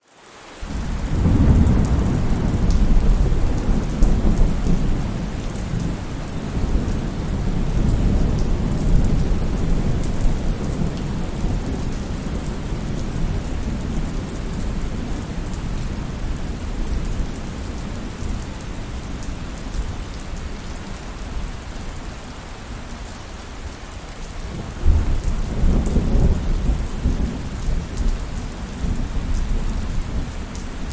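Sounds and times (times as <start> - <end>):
heavy rain falling: 0.0 - 30.9
rolling thunder: 0.8 - 17.2, 24.6 - 30.9.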